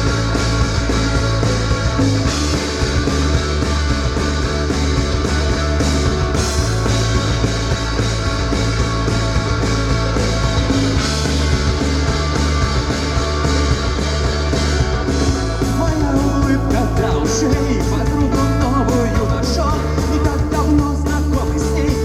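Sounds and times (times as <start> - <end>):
rock band playing live: 0.0 - 22.0.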